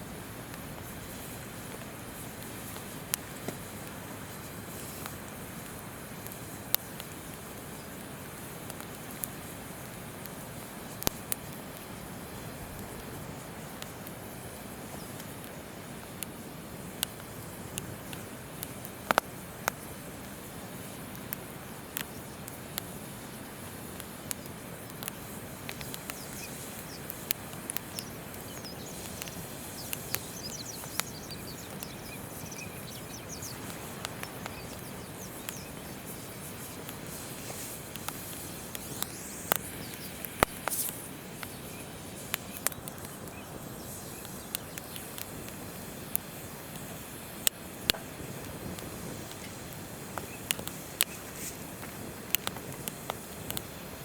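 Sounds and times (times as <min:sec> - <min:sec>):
campfire crackling and popping: 0:00.0 - 0:54.0
birds chirping: 0:24.1 - 0:46.6, 0:47.8 - 0:53.1.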